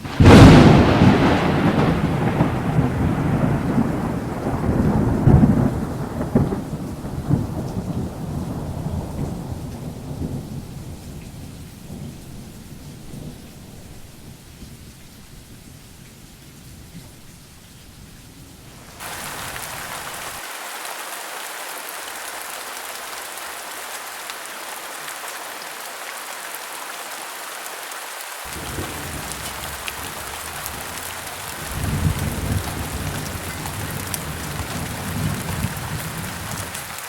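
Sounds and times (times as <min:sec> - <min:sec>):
thunder rumbling: 0:00.0 - 0:14.3, 0:28.5 - 0:37.0
steady rain: 0:00.0 - 0:37.0.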